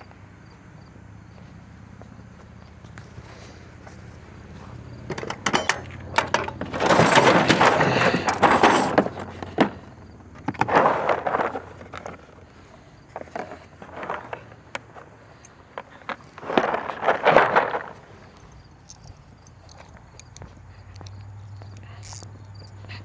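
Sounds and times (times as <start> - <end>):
metal tools clattering: 3.1 - 20.4.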